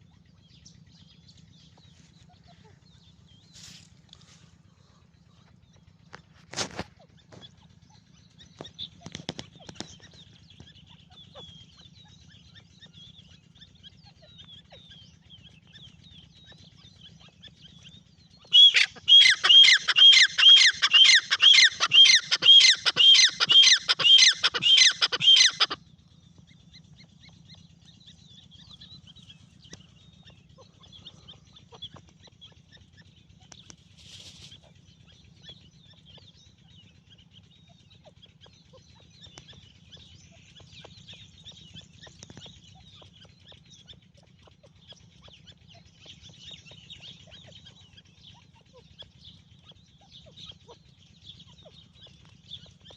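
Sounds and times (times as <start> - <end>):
francolin calling: 18.5 - 25.8.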